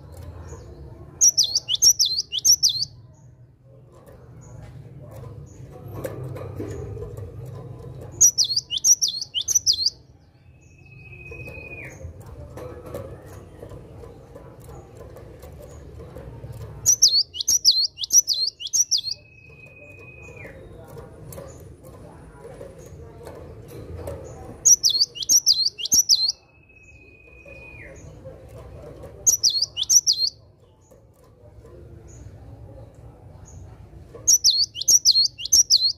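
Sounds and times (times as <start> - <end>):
bird singing sharp notes and whistles: 1.2 - 3.0, 8.2 - 12.0, 16.8 - 20.8, 24.6 - 28.2, 29.2 - 30.4, 34.3 - 35.9.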